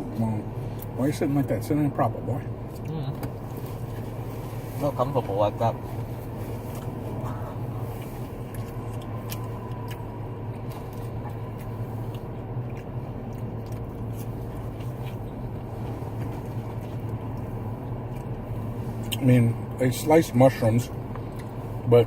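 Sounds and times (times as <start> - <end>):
steady low hum: 0.0 - 22.0
person chewing crunchy food: 6.2 - 19.2.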